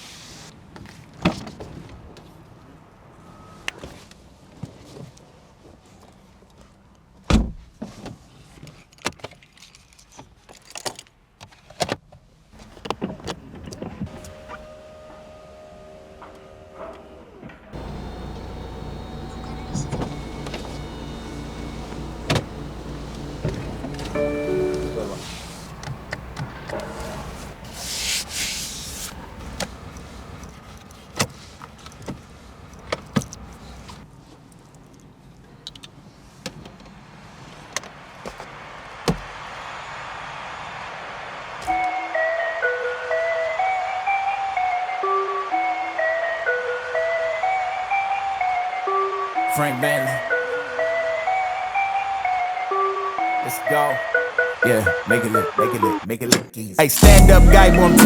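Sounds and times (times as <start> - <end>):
car door shutting thump: 7.3 - 7.7, 17.8 - 25.2
steady tone with high overtone: 24.1 - 25.7, 41.9 - 58.0.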